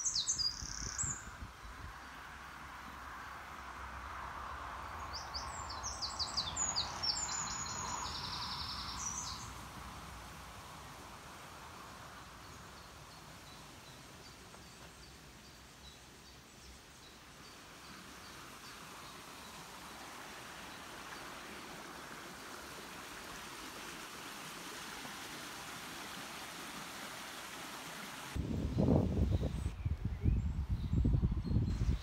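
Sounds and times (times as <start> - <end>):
songbird singing with trill: 0.0 - 1.8, 5.1 - 9.5, 28.6 - 32.0
outdoor hiss: 2.2 - 28.5.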